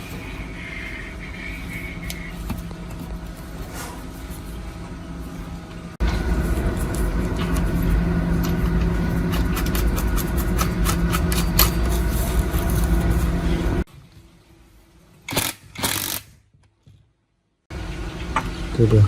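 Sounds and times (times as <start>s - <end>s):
machine humming: 0.0s - 13.9s
sharp clicks and scraping: 6.8s - 13.3s.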